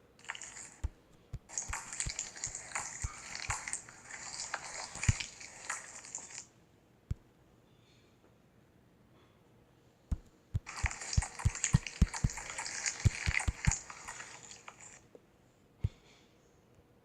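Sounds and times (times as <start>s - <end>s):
slime wet crackling: 0.2s - 6.3s, 10.1s - 14.2s
soft quick low pops: 0.8s - 3.7s, 10.1s - 13.8s.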